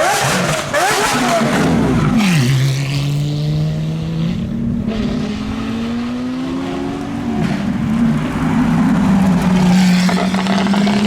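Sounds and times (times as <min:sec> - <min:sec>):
car engine pulling: 0:04.3 - 0:11.0.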